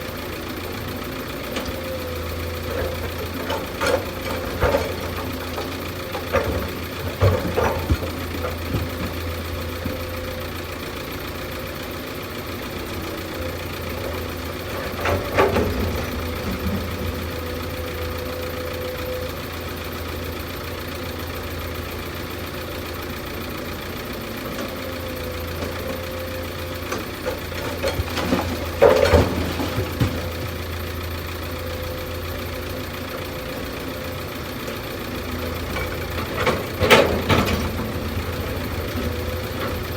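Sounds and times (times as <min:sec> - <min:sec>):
excavator diesel engine idling: 0:00.0 - 0:39.9
metal knocks and clanks: 0:02.7 - 0:10.0, 0:27.3 - 0:30.7, 0:35.8 - 0:39.9.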